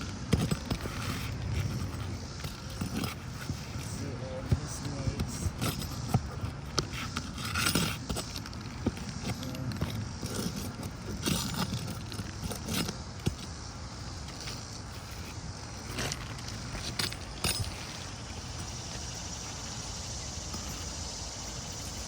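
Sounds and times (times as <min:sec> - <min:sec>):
metal tool clicking and scraping: 0:00.3 - 0:04.0, 0:04.8 - 0:13.5.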